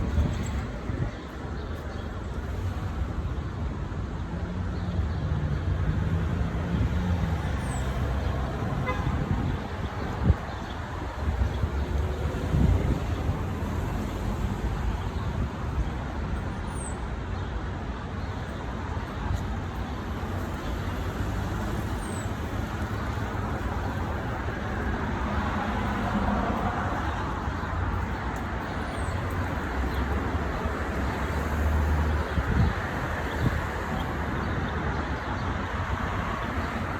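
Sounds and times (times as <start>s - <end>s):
city road traffic: 0.0s - 36.9s.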